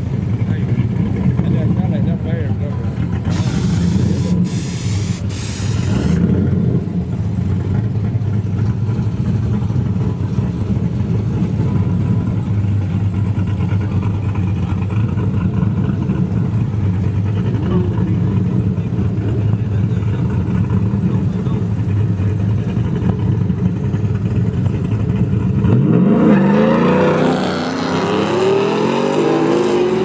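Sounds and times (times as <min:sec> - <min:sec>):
race car engine rumbling: 0:00.0 - 0:30.0
loud hiss: 0:03.3 - 0:06.2.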